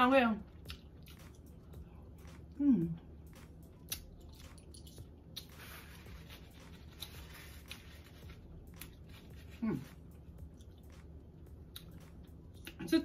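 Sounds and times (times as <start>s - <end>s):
soft chewing and mouth clicks: 0.5s - 12.8s
person humming: 2.5s - 3.0s
paper napkin rustling: 5.4s - 10.1s.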